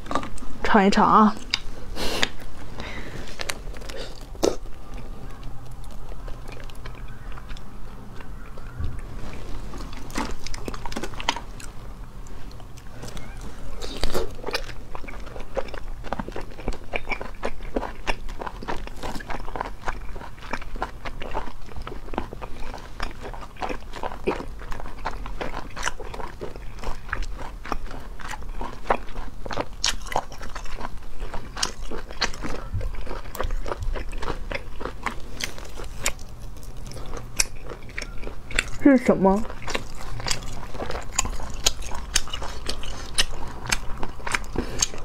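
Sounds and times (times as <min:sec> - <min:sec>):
chewing with wet mouth clicks: 0:00.0 - 0:00.6, 0:01.2 - 0:45.0
snail shells clicking and scraping: 0:09.4 - 0:45.0.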